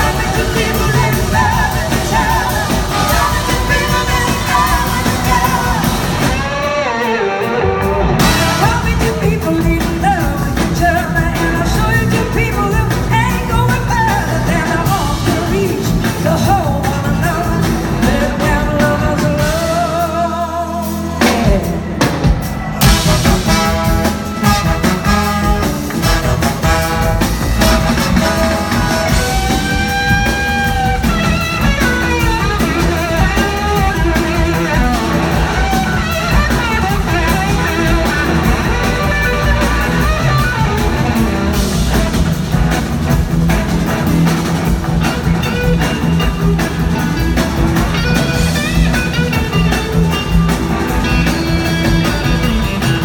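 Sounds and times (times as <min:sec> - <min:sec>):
lead vocal singing: 0:00.0 - 0:41.7
rock-soul band playing live: 0:00.0 - 0:53.0.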